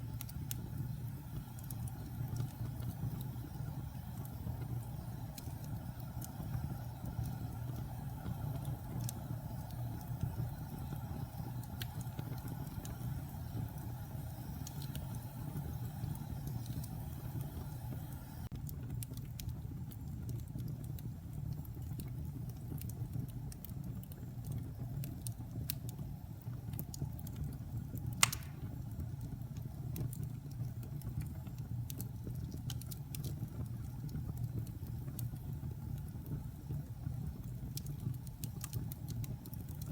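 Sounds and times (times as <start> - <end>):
burning wood crackling: 0.0 - 39.9
fire rumbling: 0.0 - 39.9
loud pop of fire: 28.2 - 28.8.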